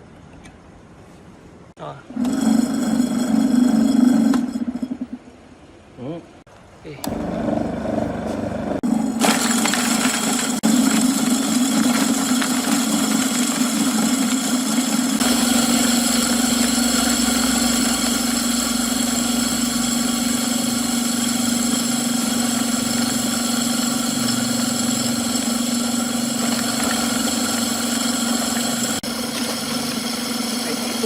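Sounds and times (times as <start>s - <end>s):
feed grinder motor humming: 7.0s - 31.0s.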